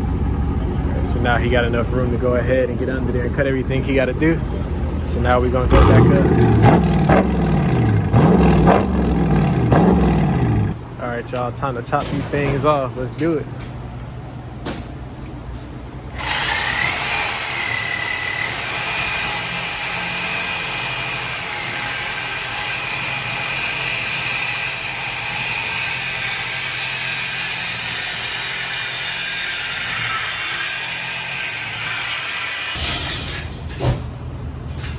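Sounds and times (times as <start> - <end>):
power cutting tool whining: 16.2 - 32.8.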